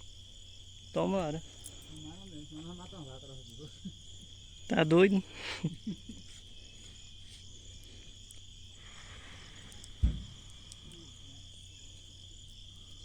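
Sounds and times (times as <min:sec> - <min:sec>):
crickets chirring: 0:00.0 - 0:13.0
dull thump: 0:09.9 - 0:10.6.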